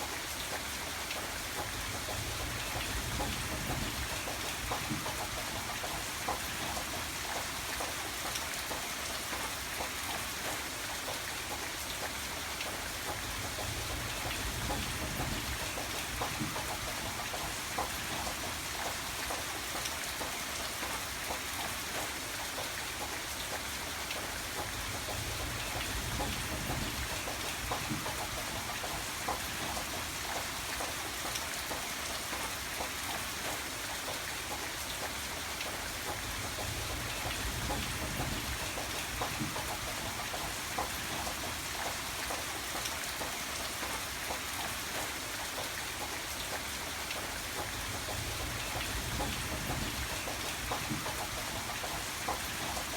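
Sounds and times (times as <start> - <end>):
raindrops ticking on a surface: 0.0 - 52.9
rain hissing: 34.5 - 52.9.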